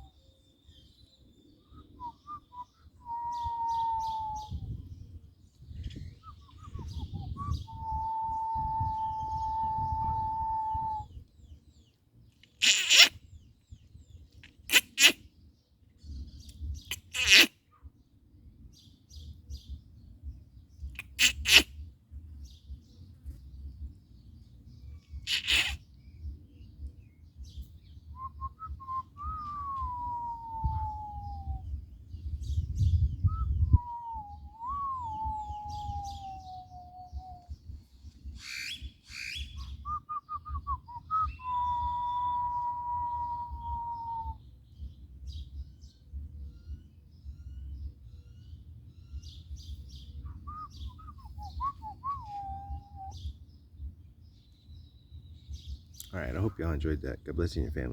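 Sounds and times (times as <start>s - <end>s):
faint high bird chirps: 0.0s - 18.0s, 18.8s - 56.7s
loud harsh bird squawk: 3.2s - 4.6s, 12.4s - 13.4s, 14.4s - 15.4s, 16.8s - 17.6s, 21.0s - 21.8s, 25.1s - 26.0s, 29.4s - 31.6s, 33.8s - 37.5s, 38.4s - 39.8s, 41.0s - 44.4s
short rasping bird calls: 12.4s - 13.4s, 14.4s - 15.4s, 16.8s - 17.6s, 21.0s - 21.9s, 25.1s - 26.0s, 38.3s - 39.8s
steady whistle-like tone: 39.8s - 44.4s, 50.5s - 53.2s.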